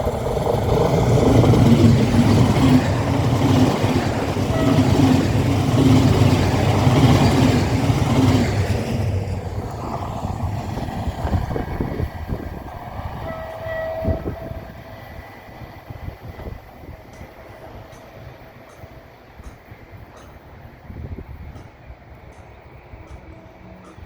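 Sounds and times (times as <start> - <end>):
train rumbling past: 0.0 - 24.0
wheels clicking over rail joints: 16.3 - 24.0.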